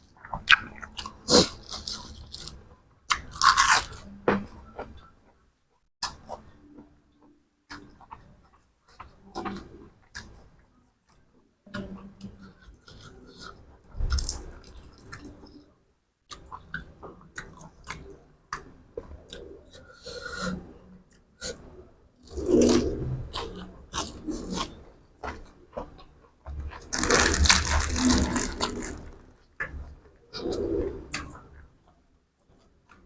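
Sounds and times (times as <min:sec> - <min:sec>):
chewing and crunching food: 0:00.0 - 0:05.4, 0:06.0 - 0:33.0.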